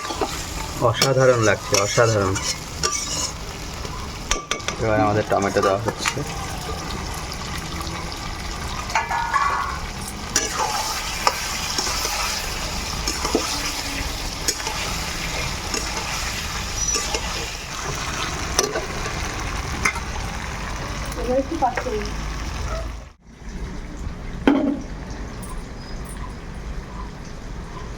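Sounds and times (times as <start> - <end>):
spatula scraping and knocking pan: 0.0 - 6.3, 8.9 - 18.9
chicken sizzling in a pan: 0.0 - 23.1.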